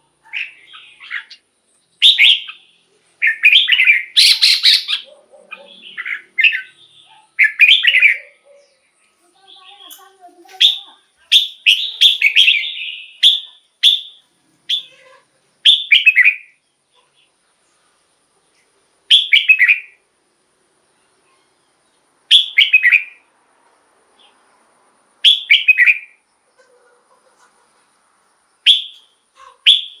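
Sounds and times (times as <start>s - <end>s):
bird singing: 0.0s - 17.4s, 19.1s - 20.0s, 20.9s - 23.2s, 25.2s - 26.8s, 28.5s - 30.0s.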